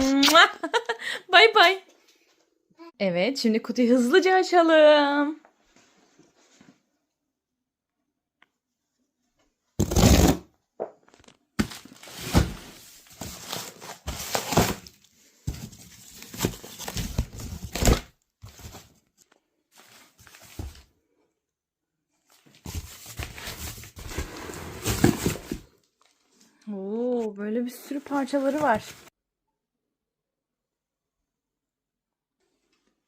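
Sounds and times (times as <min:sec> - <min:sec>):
cardboard and tape ripping: 0:09.8 - 0:10.5, 0:11.2 - 0:15.0, 0:15.7 - 0:18.9, 0:22.6 - 0:25.7.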